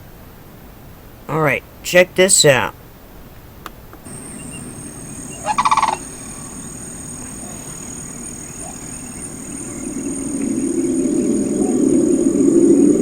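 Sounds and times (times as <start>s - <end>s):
thin steady high tones: 4.1s - 12.9s
low rumbling: 4.1s - 13.0s
warbling animal call: 4.1s - 13.0s.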